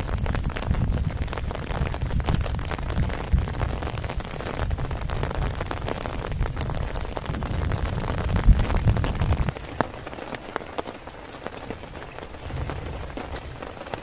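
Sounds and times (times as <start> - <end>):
low rumble: 0.0 - 9.8
heavy rain falling: 0.0 - 14.0.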